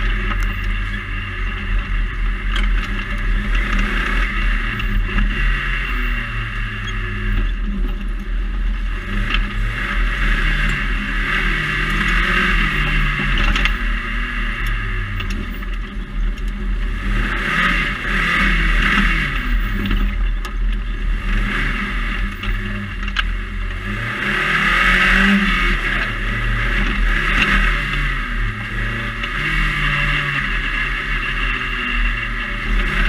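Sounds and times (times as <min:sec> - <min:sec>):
buggy engine revving: 0:00.0 - 0:33.0.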